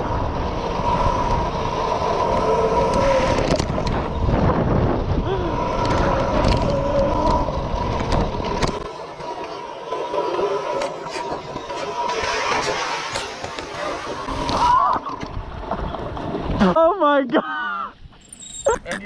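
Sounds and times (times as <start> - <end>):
small engine revving: 0.0 - 14.6.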